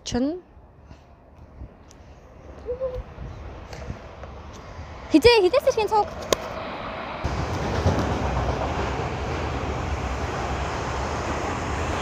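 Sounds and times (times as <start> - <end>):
train rumbling: 2.4 - 12.0.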